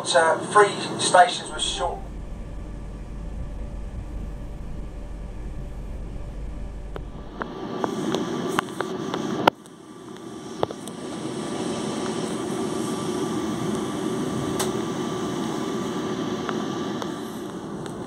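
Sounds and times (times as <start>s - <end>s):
train wheels rumbling on rails: 1.4s - 8.7s.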